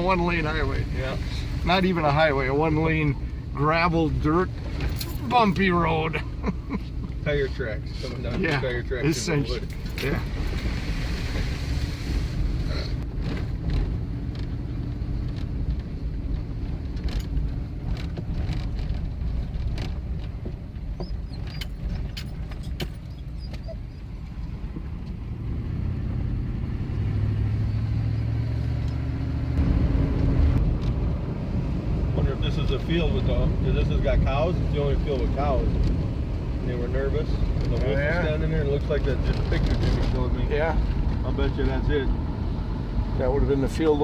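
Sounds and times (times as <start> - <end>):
vehicle engine rumble: 0.0 - 44.0
knocks and rattles: 4.5 - 5.9, 13.1 - 23.6.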